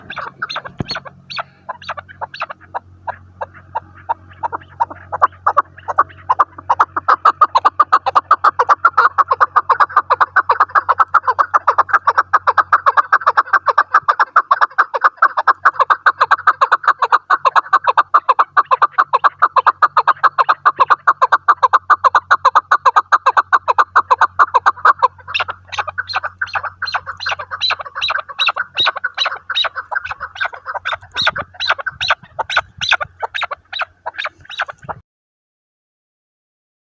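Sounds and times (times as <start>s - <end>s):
partridge calling: 0.0s - 35.0s.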